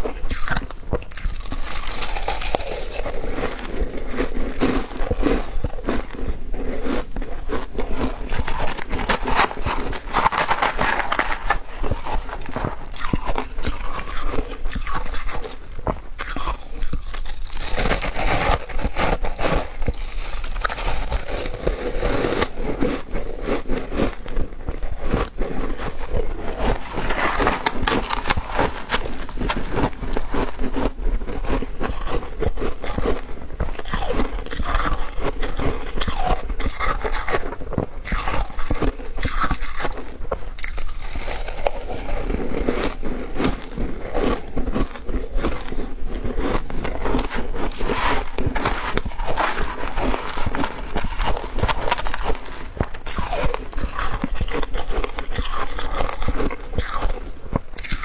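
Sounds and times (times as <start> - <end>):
chewing and crunching ice: 0.0 - 58.0.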